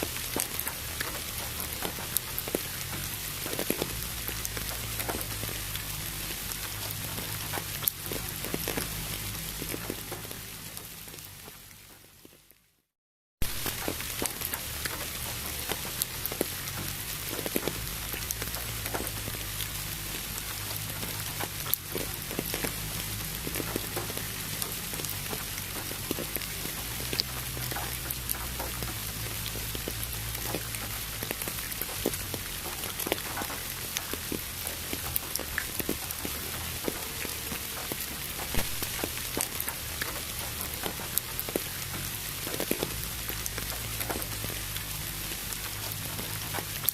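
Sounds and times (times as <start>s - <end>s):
pink noise hiss: 0.0s - 12.6s, 13.4s - 46.9s
raindrops pattering: 0.0s - 46.9s
low steady hum: 13.4s - 46.9s.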